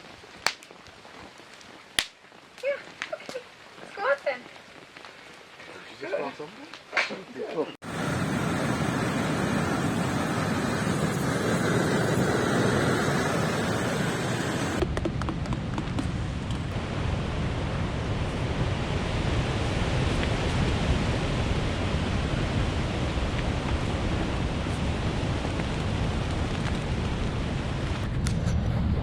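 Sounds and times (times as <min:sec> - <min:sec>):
strong storm wind rushing: 0:07.8 - 0:29.0.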